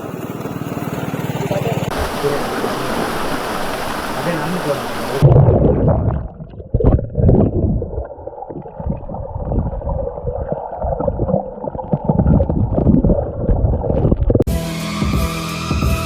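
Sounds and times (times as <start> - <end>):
faint steady hum: 1.9 - 5.2
wind buffeting microphone: 1.9 - 14.5.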